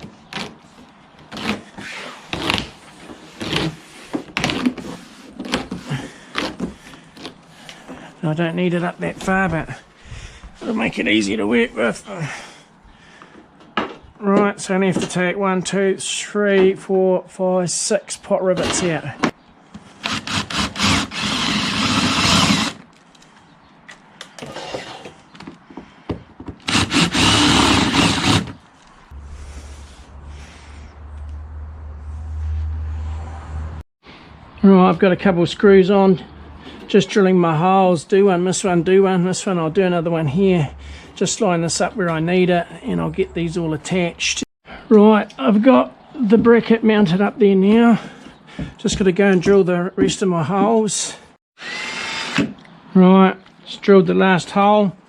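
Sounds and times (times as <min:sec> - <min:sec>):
screwdriver scraping and creaking: 0:19.8 - 0:25.6
power drill drilling rivets: 0:51.6 - 0:52.7.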